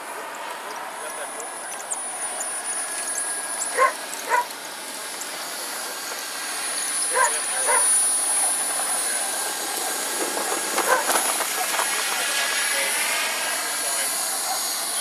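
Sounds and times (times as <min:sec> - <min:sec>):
model jet turbine whining: 0:00.0 - 0:15.0
dog barking: 0:03.8 - 0:04.5, 0:07.1 - 0:07.9, 0:10.8 - 0:11.2, 0:14.1 - 0:14.8.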